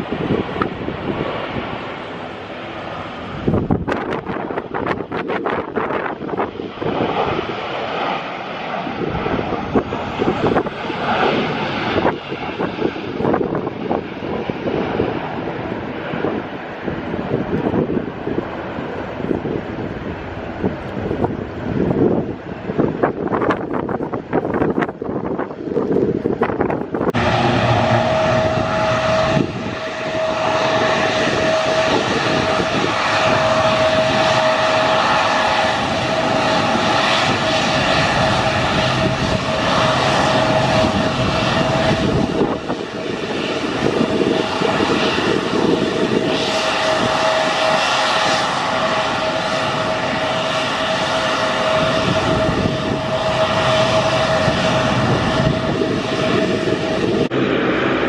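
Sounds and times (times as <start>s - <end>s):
airliner engines whining: 0.0s - 58.0s.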